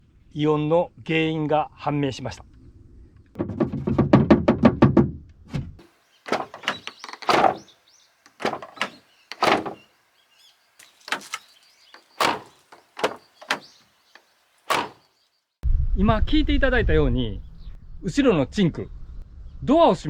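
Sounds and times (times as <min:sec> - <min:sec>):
car door shutting: 0:06.3 - 0:07.7, 0:08.3 - 0:09.8, 0:10.8 - 0:15.1
rattling inside car door: 0:06.3 - 0:07.7, 0:08.3 - 0:09.9, 0:10.8 - 0:15.1.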